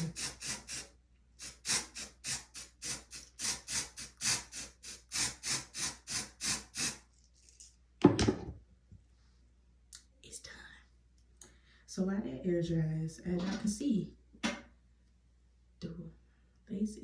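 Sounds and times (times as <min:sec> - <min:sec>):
aerosol spray hissing bursts: 0:00.0 - 0:07.0.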